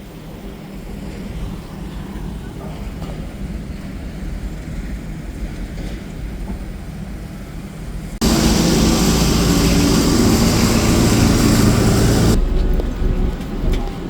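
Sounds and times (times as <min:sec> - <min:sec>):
road hiss: 0:08.2 - 0:12.4
bus engine drone: 0:08.2 - 0:14.0
low engine rumble with hum: 0:08.2 - 0:14.0.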